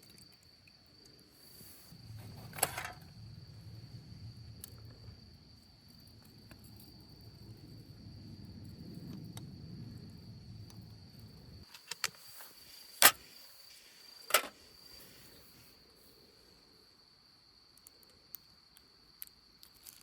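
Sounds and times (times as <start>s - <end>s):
high insect trill: 0.0s - 20.0s
low rumble: 2.0s - 11.6s.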